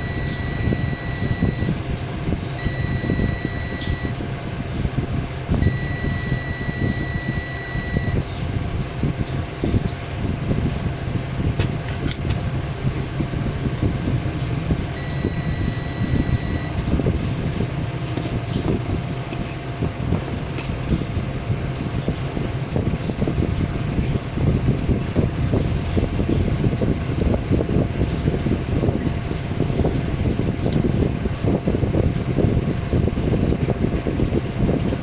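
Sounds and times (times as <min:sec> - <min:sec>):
multimeter high beeps: 0:00.0 - 0:01.8, 0:02.6 - 0:04.2, 0:05.6 - 0:08.2, 0:15.0 - 0:16.8.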